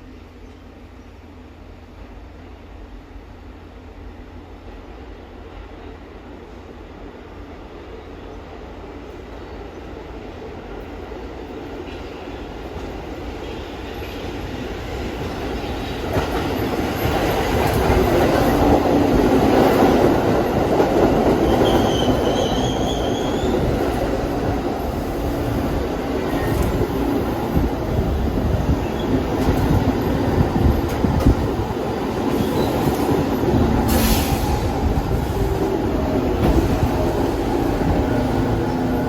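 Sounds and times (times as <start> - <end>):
subway train rumble: 0.0 - 39.0
high wheel squeal: 21.6 - 23.7.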